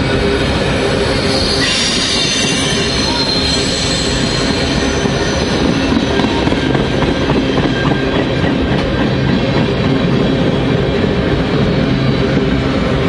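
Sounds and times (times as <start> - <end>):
freight train wheels on rails: 0.0 - 13.0.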